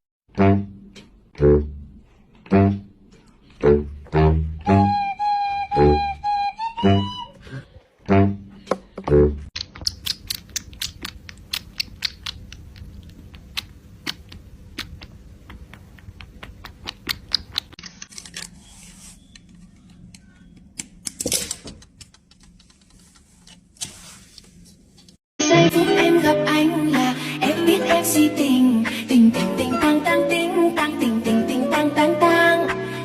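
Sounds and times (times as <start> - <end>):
sharp clicks and taps: 8.6 - 17.8.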